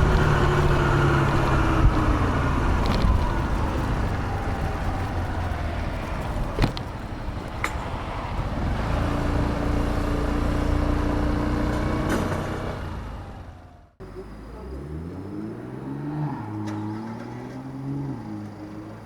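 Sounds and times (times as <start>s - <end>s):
scooter engine and road noise: 0.0s - 19.0s
steady engine hum: 0.0s - 19.0s.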